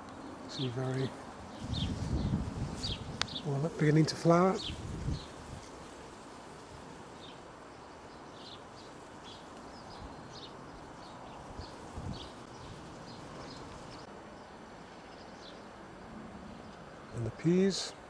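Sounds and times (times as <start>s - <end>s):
bird chirping: 0.0s - 3.6s, 7.2s - 15.7s
faint outdoor hiss: 0.0s - 18.0s.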